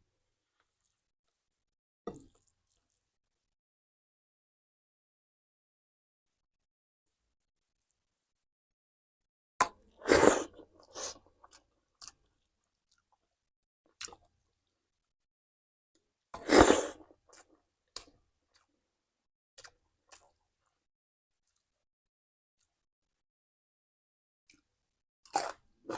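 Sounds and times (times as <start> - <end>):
person biting and chewing food: 16.4 - 17.0, 25.3 - 25.9.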